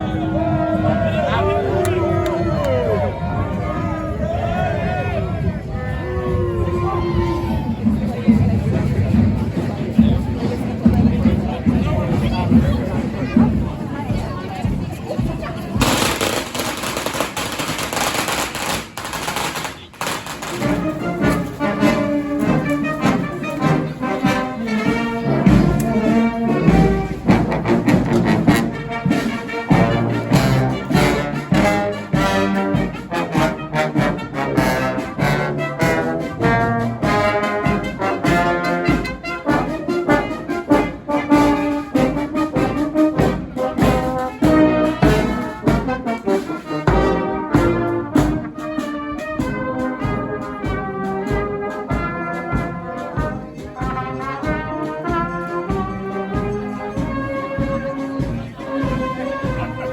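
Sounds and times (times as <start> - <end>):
trumpets and trombones: 0.0 - 10.6, 15.7 - 59.9
steady drum beat: 7.8 - 59.9.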